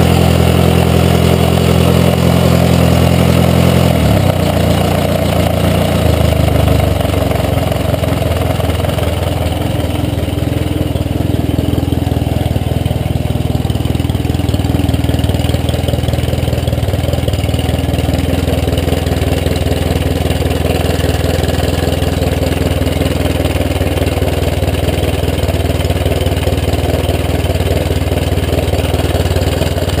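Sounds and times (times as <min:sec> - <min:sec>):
motorcycle engine idling: 0:00.0 - 0:30.0.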